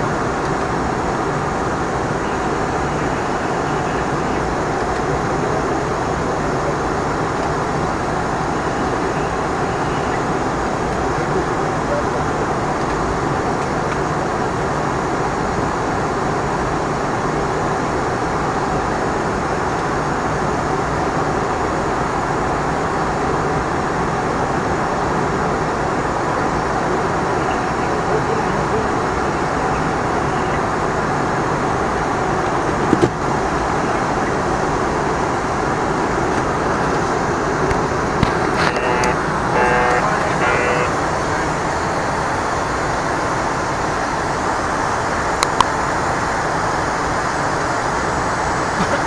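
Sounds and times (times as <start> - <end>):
jet engines and airflow in cockpit: 0.0 - 49.0.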